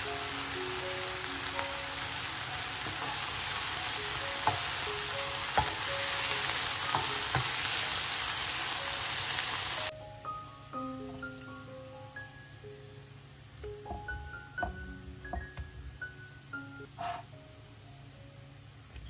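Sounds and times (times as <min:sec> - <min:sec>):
onions and mushrooms sizzling: 0:00.0 - 0:10.0, 0:10.7 - 0:12.7, 0:13.4 - 0:16.0.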